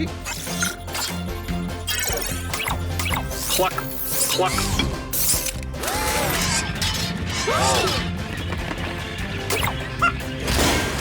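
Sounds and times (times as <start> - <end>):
cartoon background music: 0.0 - 11.0
crashing and clattering effects: 10.4 - 11.0.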